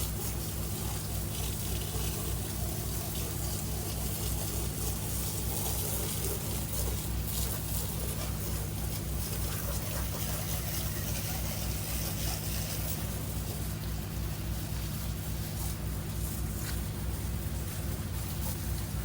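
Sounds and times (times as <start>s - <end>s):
constant hiss: 0.0s - 19.0s
small engine running: 0.0s - 19.0s.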